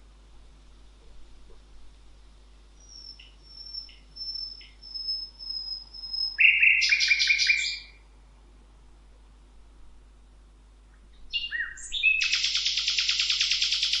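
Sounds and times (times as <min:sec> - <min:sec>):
high whistled bird calls: 0:02.8 - 0:08.0, 0:11.3 - 0:14.0
short lower bird chips: 0:02.8 - 0:08.0.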